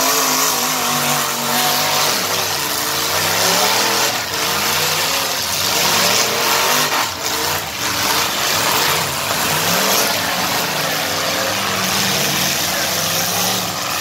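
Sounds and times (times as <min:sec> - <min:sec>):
car engines revving: 0:00.0 - 0:14.0.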